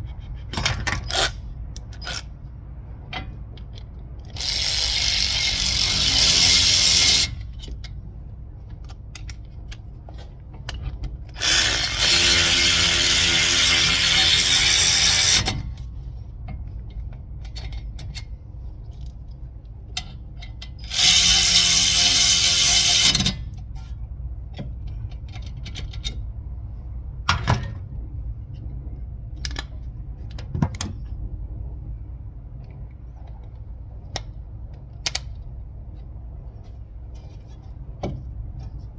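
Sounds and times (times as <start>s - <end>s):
power tool motor running: 4.4s - 7.4s, 11.4s - 15.6s, 20.9s - 23.2s.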